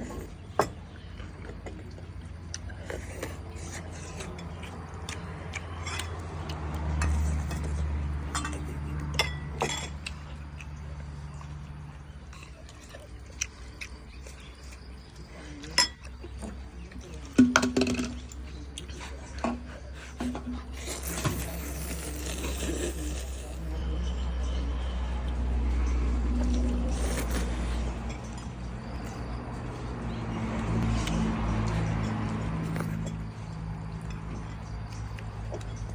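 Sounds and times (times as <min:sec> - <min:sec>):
tableware clinking: 0:07.0 - 0:10.1, 0:15.8 - 0:16.0.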